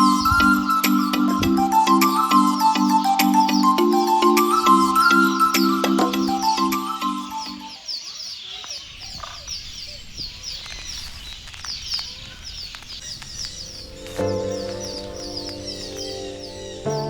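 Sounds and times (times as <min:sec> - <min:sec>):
music: 0:00.0 - 0:07.7, 0:13.8 - 0:17.0
birds chirping: 0:00.0 - 0:17.0.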